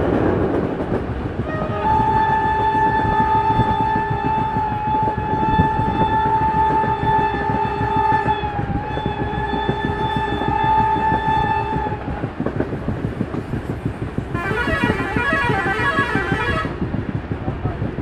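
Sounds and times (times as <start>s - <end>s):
moving train rumble and clatter: 0.0s - 18.0s
train horn blast: 1.4s - 12.0s, 14.3s - 16.8s.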